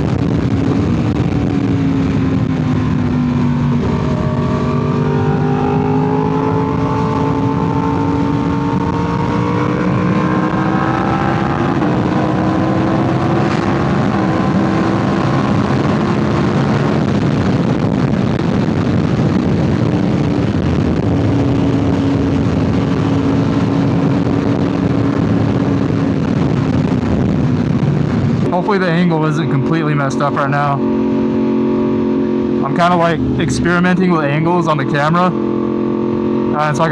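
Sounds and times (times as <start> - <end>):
motorcycle engine: 0.0 - 36.9
wind rush over microphone: 0.0 - 36.9.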